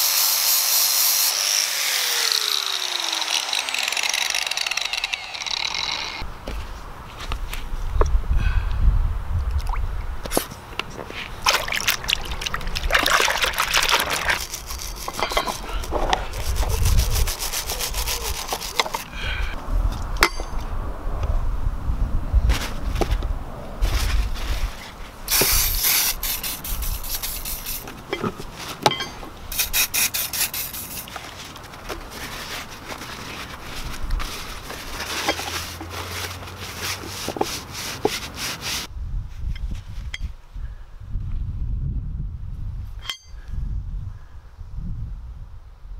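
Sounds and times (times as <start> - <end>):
aerosol can hissing: 25.3 - 27.8.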